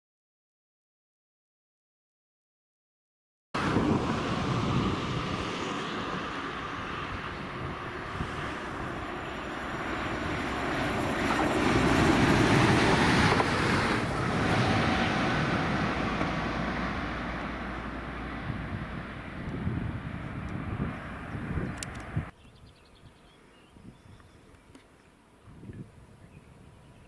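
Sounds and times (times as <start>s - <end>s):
train rumbling: 3.6s - 22.2s.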